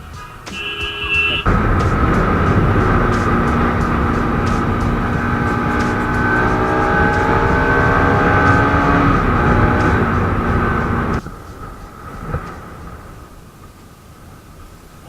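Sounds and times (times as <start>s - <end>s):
wind noise on microphone: 0.0s - 15.0s
motorcycle engine accelerating: 1.4s - 13.2s.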